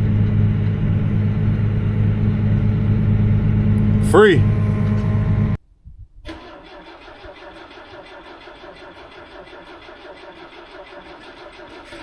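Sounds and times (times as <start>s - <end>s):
engine running steadily: 0.0s - 5.6s.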